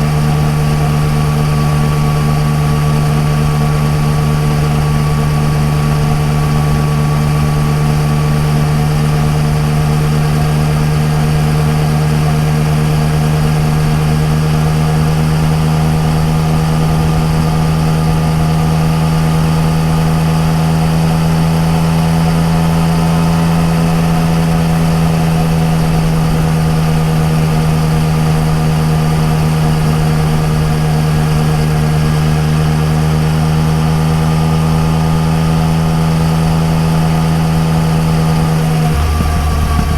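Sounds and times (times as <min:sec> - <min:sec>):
motorcycle engine cruising: 0:35.9 - 0:39.9.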